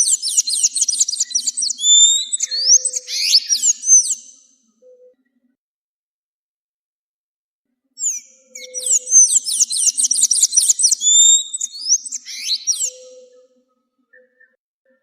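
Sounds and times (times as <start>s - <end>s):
bird singing falling notes: 0.0s - 4.4s, 8.0s - 13.4s.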